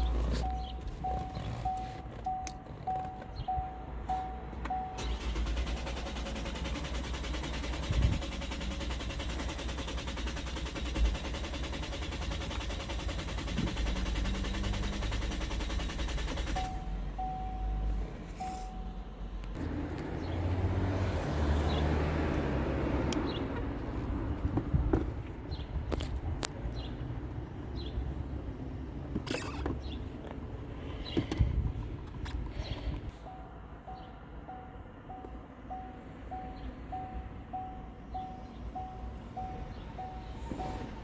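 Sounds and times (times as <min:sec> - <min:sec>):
car engine cranking: 0:00.0 - 0:18.8, 0:28.9 - 0:33.2.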